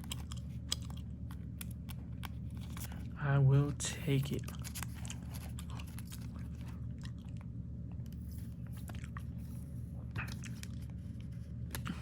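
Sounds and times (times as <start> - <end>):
cards being shuffled: 0.0 - 3.2, 4.1 - 6.6
low hum: 0.0 - 12.0.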